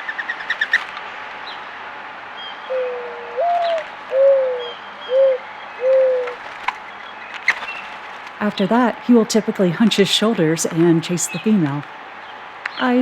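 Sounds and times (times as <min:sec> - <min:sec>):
mourning dove cooing: 0:02.6 - 0:06.5.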